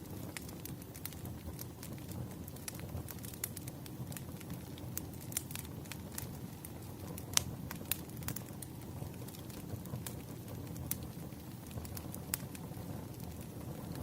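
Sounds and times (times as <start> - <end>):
fire pops and snaps: 0.0 - 14.0
wood fire crackling: 0.0 - 14.0.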